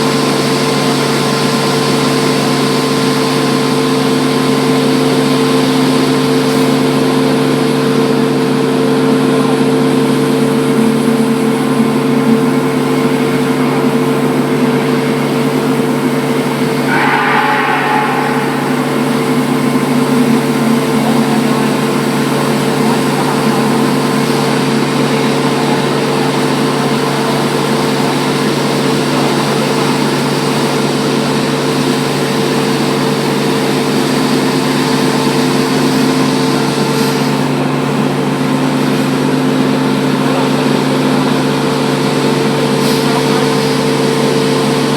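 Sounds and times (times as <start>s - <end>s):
short high-pitched sound: 16.9s - 19.9s.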